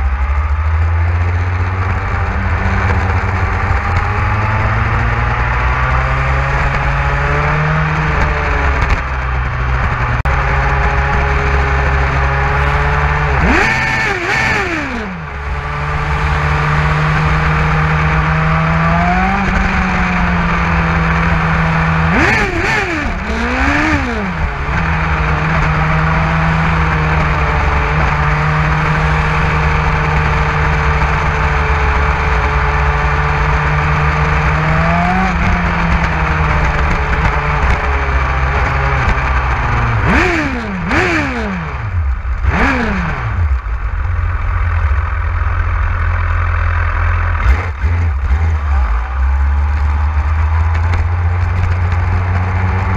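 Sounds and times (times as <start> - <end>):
motorcycle engine cruising: 0.0 - 52.9
vehicle passing by: 10.6 - 21.1.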